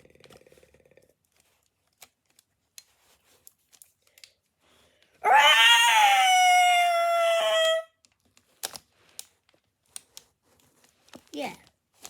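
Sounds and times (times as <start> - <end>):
dinosaur-style screech: 5.2 - 7.9
plastic toys clicking: 8.0 - 10.3.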